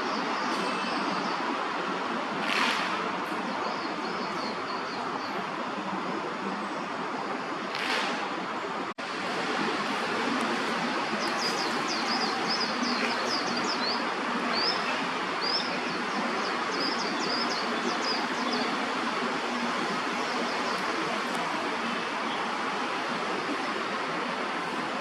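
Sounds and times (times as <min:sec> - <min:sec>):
steady rushing noise: 0:00.0 - 0:25.0.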